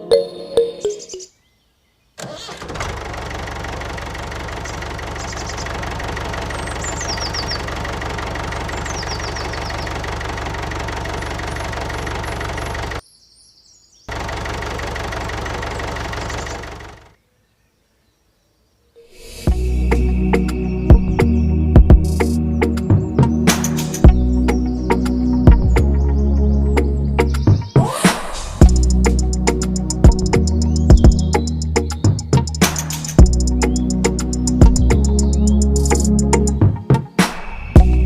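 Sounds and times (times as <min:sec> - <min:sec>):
small engine chugging: 0:02.3 - 0:13.0, 0:14.1 - 0:17.2.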